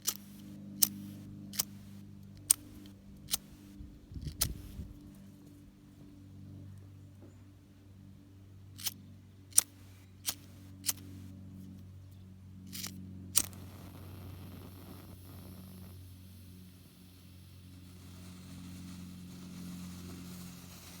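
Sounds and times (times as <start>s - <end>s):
lighter flint wheel clicks: 0.0s - 5.0s, 8.8s - 11.3s, 12.7s - 15.9s
faint steady hiss: 13.4s - 21.0s.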